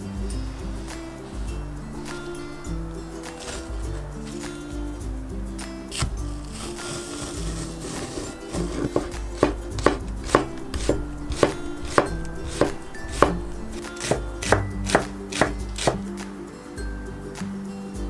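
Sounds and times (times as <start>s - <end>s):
knife chopping on cutting board: 8.6s - 16.0s.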